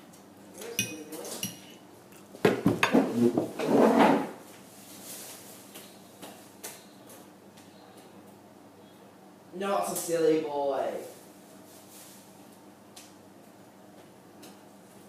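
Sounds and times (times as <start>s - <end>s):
cutlery clinking and scraping on plate: 0.6s - 1.8s.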